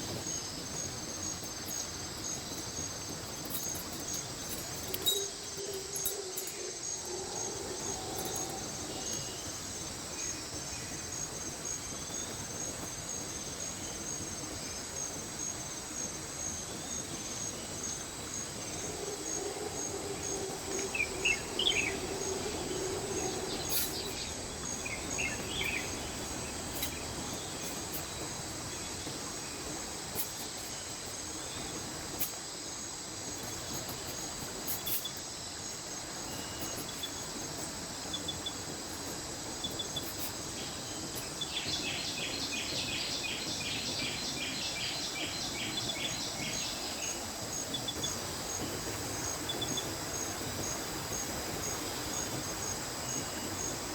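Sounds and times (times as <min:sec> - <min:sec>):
insects trilling: 0:00.0 - 0:53.9
stream rushing: 0:00.0 - 0:53.9
bird chirps: 0:20.5 - 0:28.1.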